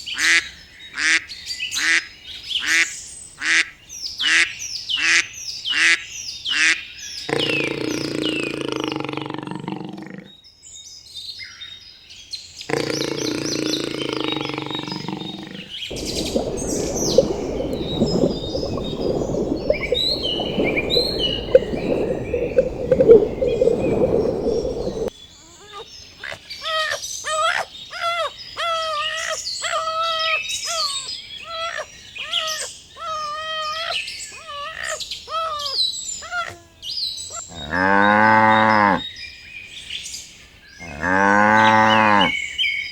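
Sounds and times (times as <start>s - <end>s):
birds chirping: 15.9s - 25.1s
cow mooing: 37.6s - 39.0s, 40.9s - 42.3s.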